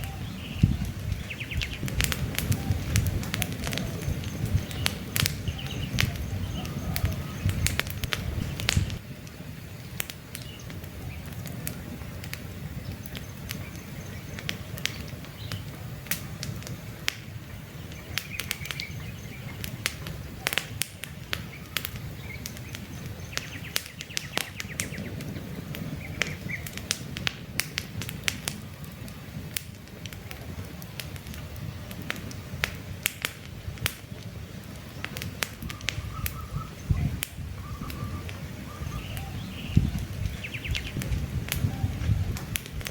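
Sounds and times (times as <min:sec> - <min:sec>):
campfire crackling and popping: 0:00.0 - 0:42.9
low rumble of flames: 0:00.0 - 0:42.9
faint bird chirps: 0:02.5 - 0:07.7, 0:35.6 - 0:41.0.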